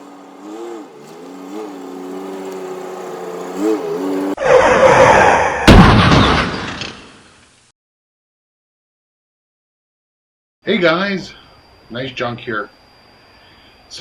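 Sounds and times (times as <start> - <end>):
humming tone: 0.0 - 4.4
sharp slam: 5.6 - 7.4.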